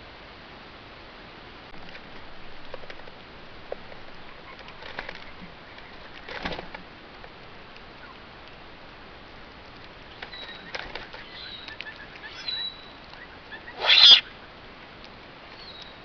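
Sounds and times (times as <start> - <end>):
steady hiss: 0.0 - 16.0
bird wings flapping: 4.5 - 6.9, 10.1 - 12.4.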